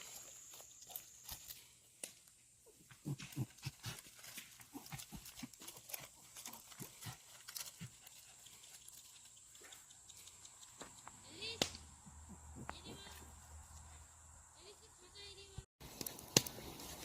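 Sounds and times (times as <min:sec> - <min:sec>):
dog grunting and snuffling: 0:02.7 - 0:08.6.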